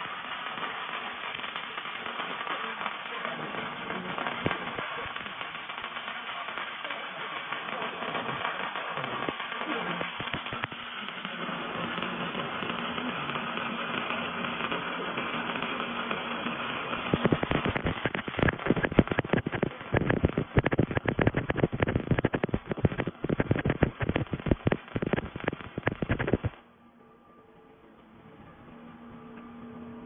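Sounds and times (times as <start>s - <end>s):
welding arc crackling: 0.0s - 26.6s
welding hiss: 0.0s - 26.6s.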